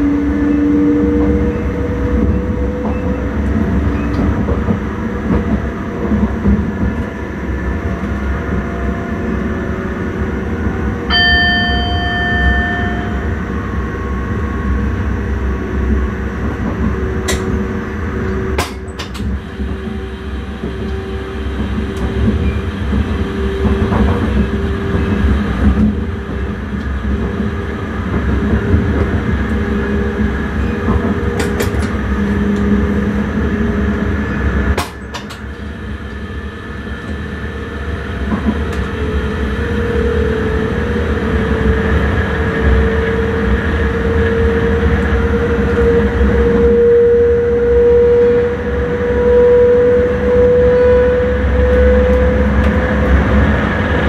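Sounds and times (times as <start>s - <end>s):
train rumbling: 0.0s - 54.0s
short ringing tone: 11.1s - 13.5s.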